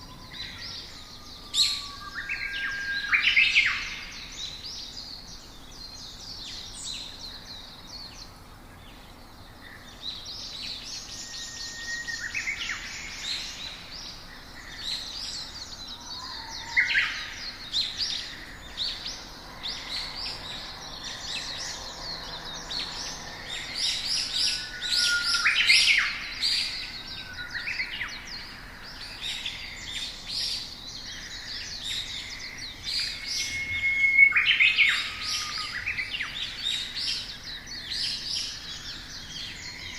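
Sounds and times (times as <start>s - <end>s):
small songbirds chirping: 0.0s - 39.9s
short whistled bird notes: 33.2s - 35.9s.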